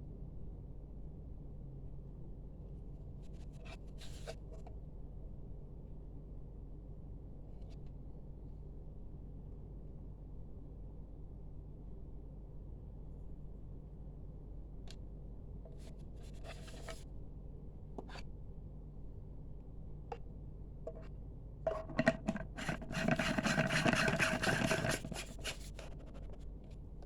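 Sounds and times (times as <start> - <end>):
rubbing and scraping: 16.2 - 17.0, 21.7 - 26.5.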